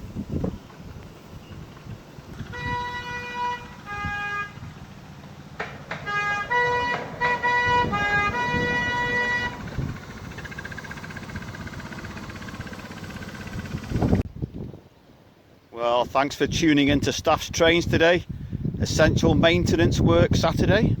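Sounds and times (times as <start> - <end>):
horn playing short notes: 2.4 - 5.0, 5.9 - 10.0.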